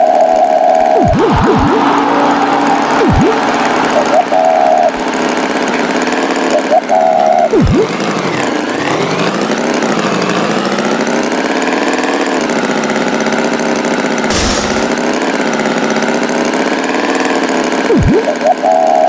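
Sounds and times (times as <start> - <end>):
tractor engine running: 14.3 - 15.4.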